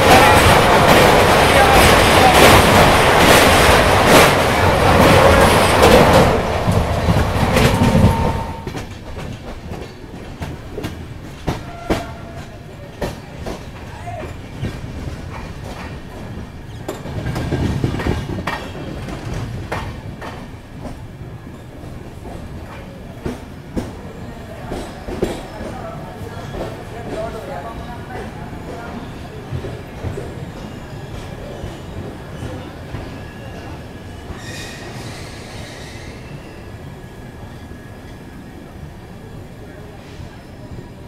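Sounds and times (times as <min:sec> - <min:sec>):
train rattling over bridge: 0:00.0 - 0:41.0
train wheel clicks and knocks: 0:05.0 - 0:21.0, 0:24.7 - 0:25.8.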